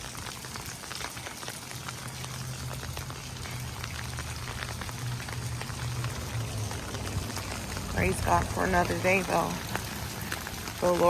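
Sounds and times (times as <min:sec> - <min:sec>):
rain pattering on ground: 0:00.0 - 0:11.0
low steady rumble: 0:01.7 - 0:11.0.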